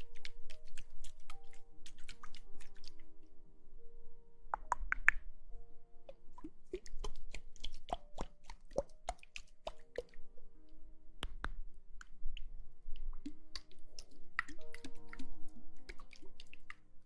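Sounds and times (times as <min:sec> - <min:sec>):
soft background music: 0:00.0 - 0:17.0
wet plopping clicks: 0:04.6 - 0:05.2.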